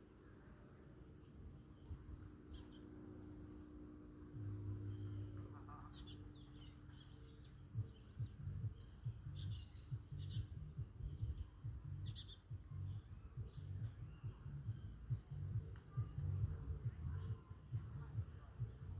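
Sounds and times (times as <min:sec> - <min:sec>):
small birds chirping: 0:00.0 - 0:18.9
low irregular thumping: 0:07.8 - 0:18.9.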